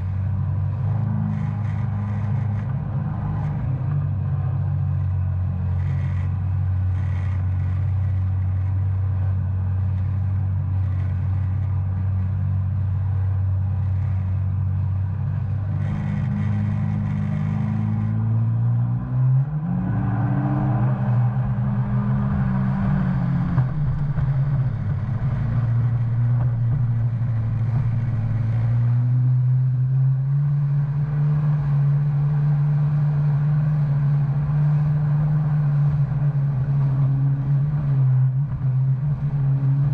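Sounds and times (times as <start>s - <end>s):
jet ski engine running: 12.8s - 18.1s.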